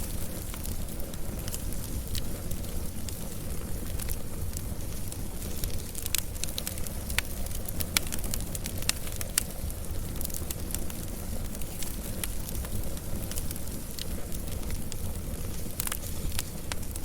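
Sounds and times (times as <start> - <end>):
fire crackles and pops: 0.0 - 17.0
wood fire low rumble: 0.0 - 17.0.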